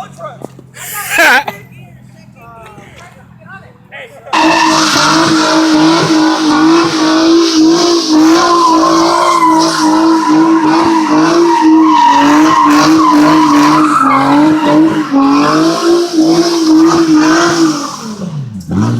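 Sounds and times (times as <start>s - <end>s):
tyres squealing on pavement: 4.3s - 18.4s
car engine at high revs: 4.3s - 18.9s.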